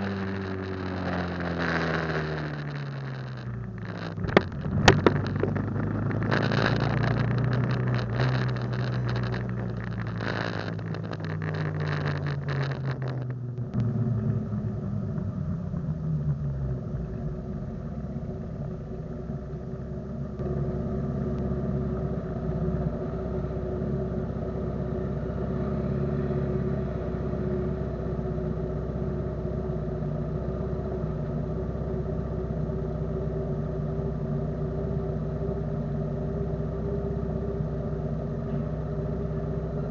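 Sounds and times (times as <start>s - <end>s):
rushing noise: 0.0s - 13.3s
motorcycle engine running: 0.0s - 39.9s.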